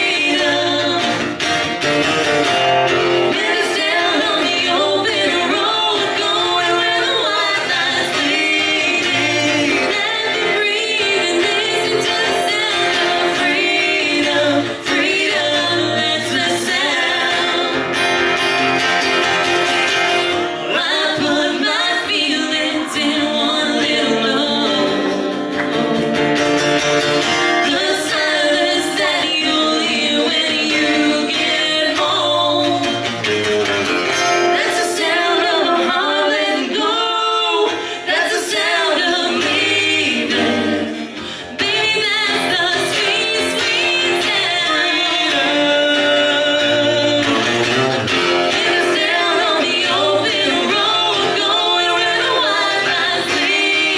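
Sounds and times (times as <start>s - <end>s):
woman singing: 0.0s - 1.5s, 3.2s - 18.1s, 20.6s - 26.2s, 27.2s - 33.2s, 34.4s - 47.6s, 48.4s - 53.9s
acoustic guitar: 0.0s - 53.9s
man singing backing vocals: 44.5s - 47.9s.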